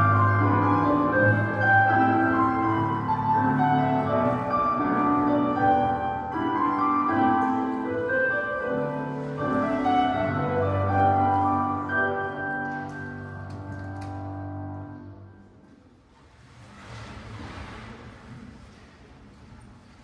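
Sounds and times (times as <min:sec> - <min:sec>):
classical piano music: 0:00.0 - 0:15.4.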